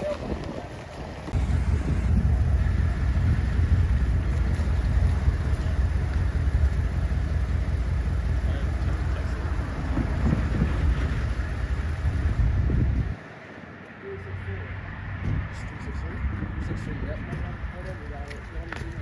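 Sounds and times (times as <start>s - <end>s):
train rumbling past on rails: 0.4s - 13.8s.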